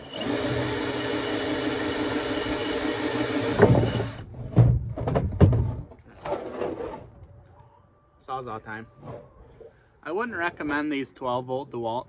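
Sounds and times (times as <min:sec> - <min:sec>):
power drill running: 0:00.0 - 0:04.2.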